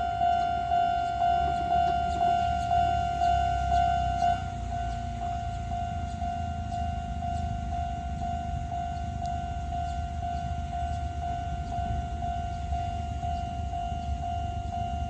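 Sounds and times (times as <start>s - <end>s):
level crossing alarm ringing: 0.0s - 15.0s
steady low rumble: 0.0s - 15.0s.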